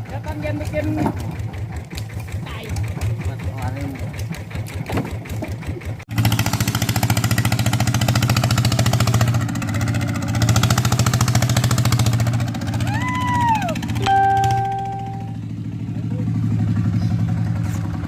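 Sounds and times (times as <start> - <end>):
diesel engine running hard: 0.0 - 18.0
quieter engine sound: 0.0 - 18.0
brief high tone: 14.0 - 15.4.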